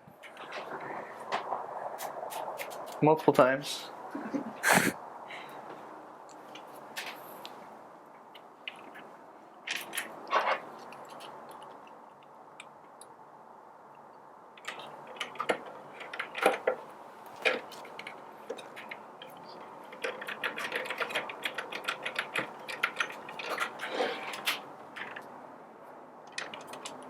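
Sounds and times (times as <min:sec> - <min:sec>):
metal screws clicking: 0:17.4 - 0:25.2.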